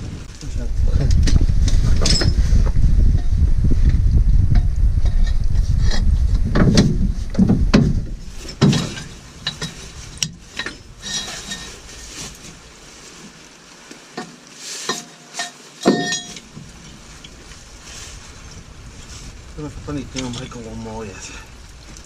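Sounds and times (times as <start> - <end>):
loud low rumble: 0.0 - 8.4.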